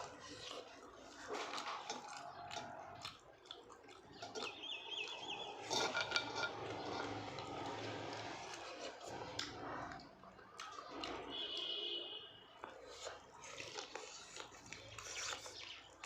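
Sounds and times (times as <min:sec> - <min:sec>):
plate and utensils clinking: 0:05.6 - 0:07.6.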